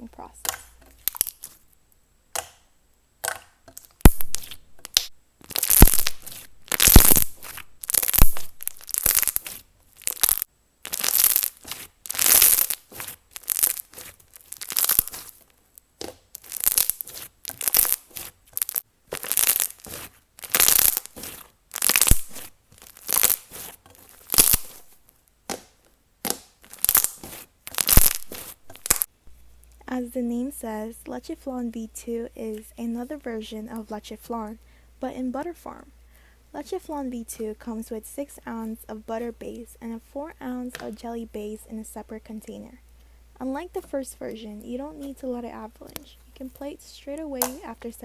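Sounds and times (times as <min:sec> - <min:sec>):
wet slime squelching: 0:00.4 - 0:01.7, 0:03.2 - 0:29.1.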